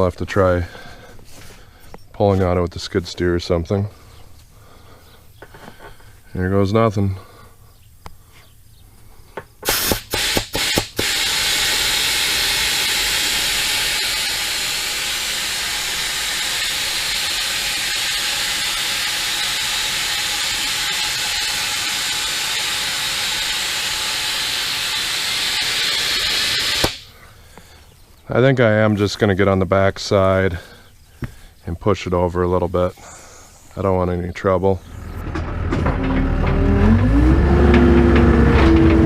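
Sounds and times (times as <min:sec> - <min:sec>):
compressed air hissing: 0:09.6 - 0:27.8.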